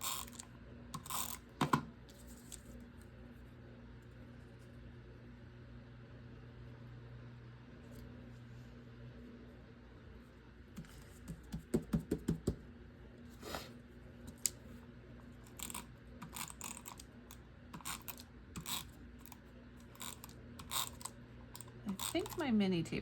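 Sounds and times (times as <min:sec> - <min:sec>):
tape runner scratching on paper: 0:15.5 - 0:17.0, 0:17.8 - 0:22.5.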